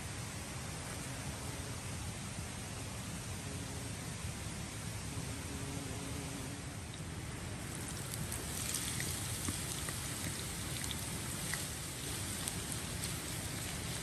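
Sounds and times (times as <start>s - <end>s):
rain falling: 6.9s - 14.0s
raindrops ticking: 6.9s - 14.0s.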